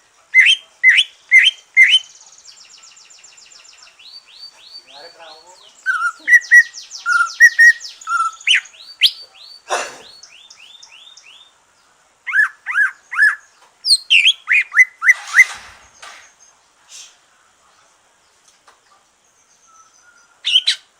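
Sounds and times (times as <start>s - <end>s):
bird singing chirps and whistles: 0.4s - 11.5s, 12.3s - 16.2s, 19.5s - 20.9s.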